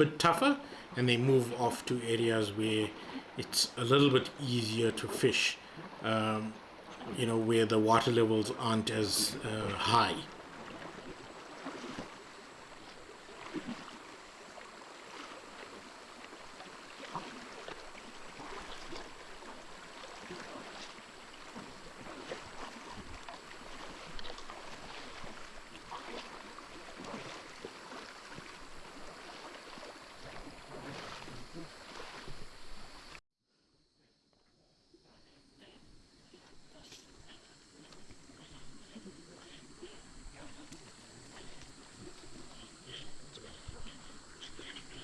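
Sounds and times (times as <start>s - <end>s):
river water flowing: 0.0s - 33.2s, 36.0s - 45.0s
small splashes and knocks: 9.7s - 33.2s, 37.0s - 45.0s.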